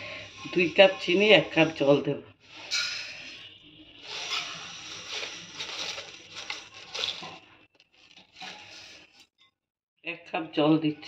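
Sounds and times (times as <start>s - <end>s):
sugar poured into a pan: 4.0s - 7.5s.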